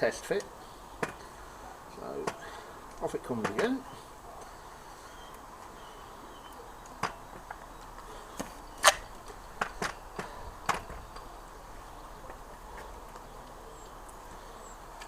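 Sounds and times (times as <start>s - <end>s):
clicks and knocks of fork parts: 6.9s - 11.3s.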